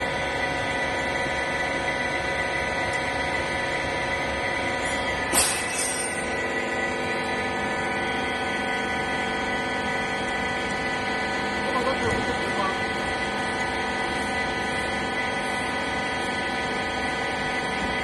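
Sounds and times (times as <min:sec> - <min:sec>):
baler machine hum and whine: 0:00.0 - 0:18.0
sharp metal clank: 0:04.8 - 0:06.4.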